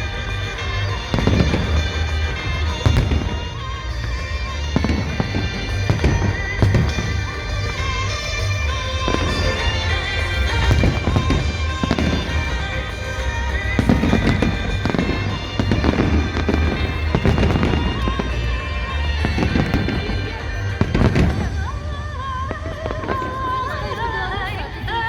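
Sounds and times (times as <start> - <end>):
fireworks bangs and crackles: 0.0 - 25.0
music with held notes: 0.0 - 25.0.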